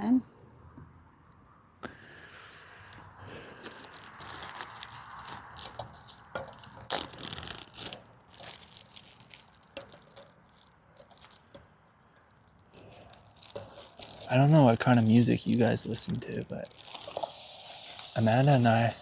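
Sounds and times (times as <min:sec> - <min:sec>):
crinkling and crackling: 0:03.2 - 0:18.7
faint hiss: 0:13.6 - 0:19.0.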